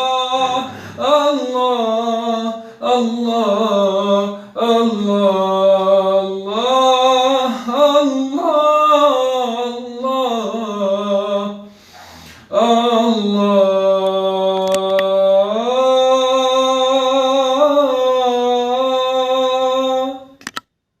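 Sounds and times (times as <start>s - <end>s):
person chanting: 0.0s - 20.4s
person breathing: 0.6s - 1.0s, 2.6s - 2.8s, 4.3s - 4.6s, 11.6s - 12.6s.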